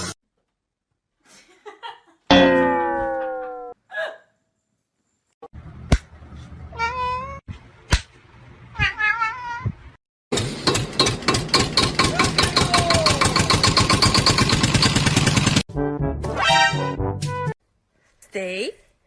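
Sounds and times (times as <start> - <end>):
cat meowing: 6.7 - 7.4, 8.8 - 9.8.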